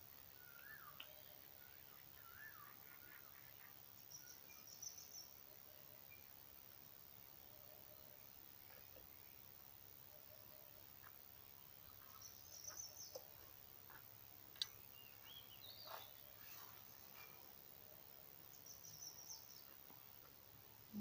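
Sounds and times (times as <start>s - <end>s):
background hiss: 0.0s - 21.0s
faint birdsong twittering: 0.0s - 21.0s
soft clicks: 14.5s - 14.8s.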